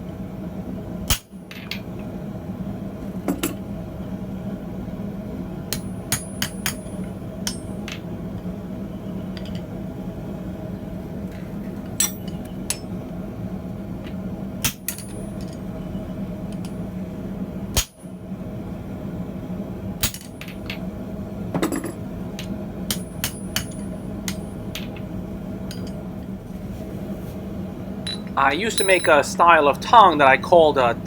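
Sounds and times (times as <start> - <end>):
steady hum: 0.0 - 31.0
hammer blows on anvil: 28.1 - 29.3.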